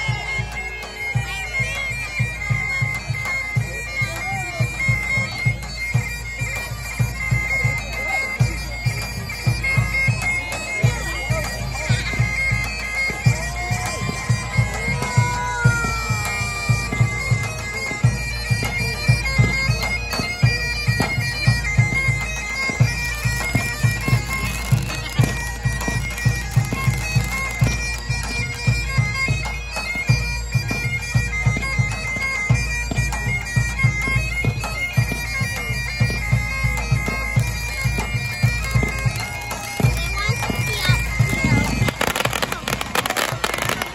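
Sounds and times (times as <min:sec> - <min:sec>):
bagpipe melody over drone: 0:00.0 - 0:43.9
fireworks bangs and pops: 0:38.7 - 0:43.9.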